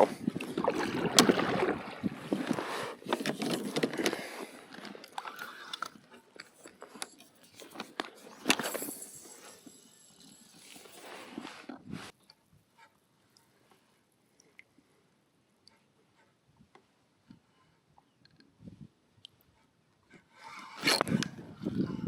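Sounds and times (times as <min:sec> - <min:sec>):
fishing gear clicks and scrapes: 0:00.0 - 0:12.2, 0:20.4 - 0:21.7.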